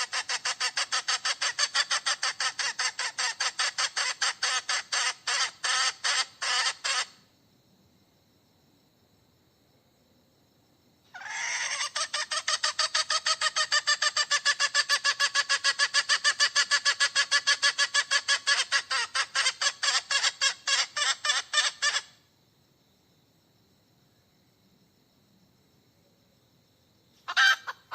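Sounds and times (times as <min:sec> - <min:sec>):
hen giving rapid pulsed calls: 0:00.0 - 0:07.2, 0:11.1 - 0:22.2, 0:27.2 - 0:27.9.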